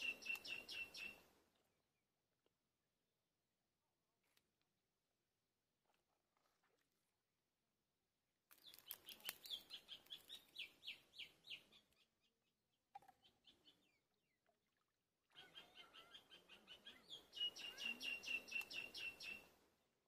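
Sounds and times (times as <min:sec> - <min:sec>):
bird chirping: 0:00.0 - 0:01.2, 0:08.5 - 0:14.4, 0:15.3 - 0:19.5.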